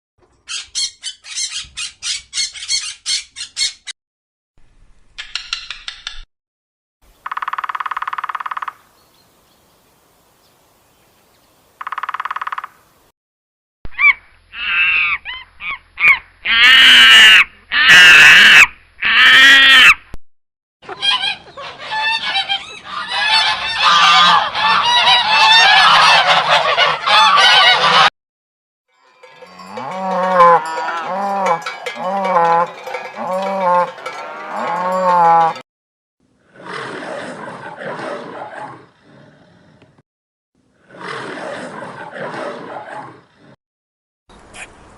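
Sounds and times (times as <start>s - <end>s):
geese honking: 20.9s - 28.1s.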